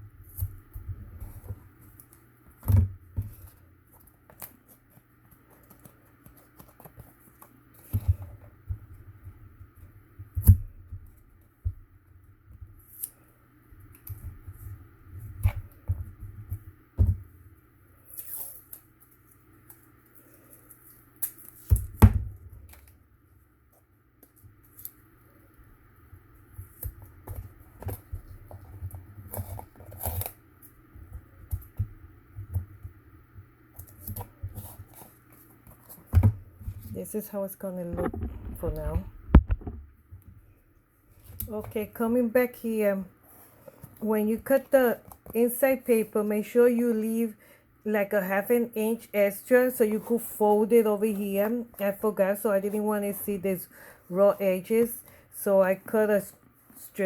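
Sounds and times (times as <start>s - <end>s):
cardboard and paper handled: 0.1s - 11.8s, 26.4s - 33.0s, 33.8s - 37.2s, 41.1s - 46.3s, 49.2s - 57.0s.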